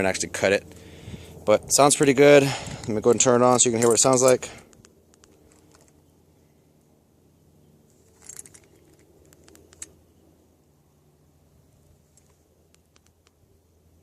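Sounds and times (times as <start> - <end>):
low steady hum: 0.0 - 14.0
keys jangling: 3.6 - 4.6, 8.0 - 9.9.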